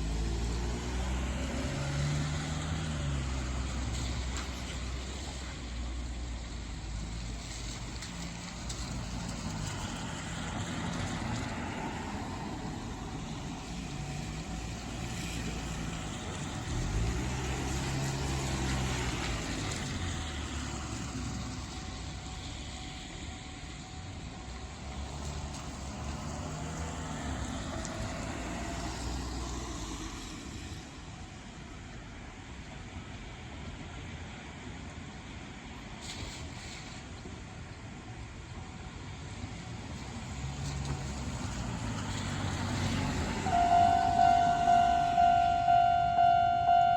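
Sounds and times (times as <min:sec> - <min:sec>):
vehicles passing: 0:00.0 - 0:31.8, 0:38.6 - 0:46.9.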